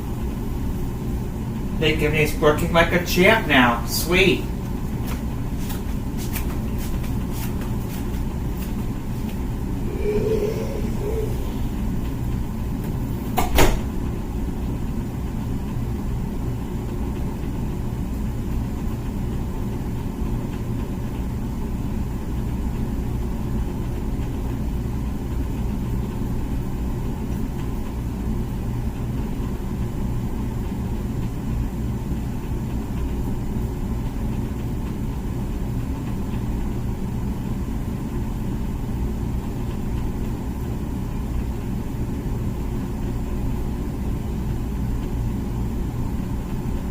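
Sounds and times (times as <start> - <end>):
dishwasher humming: 0.0 - 16.4.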